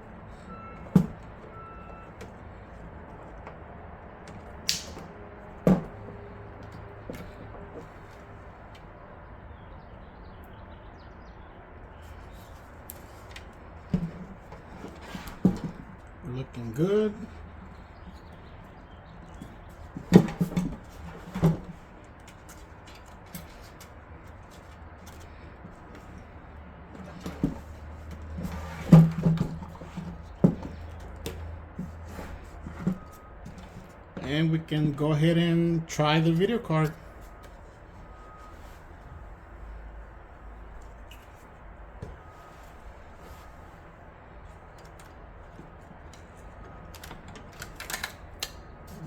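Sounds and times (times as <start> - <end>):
light clatters of hard parts: 17.2 - 34.4, 44.4 - 49.0.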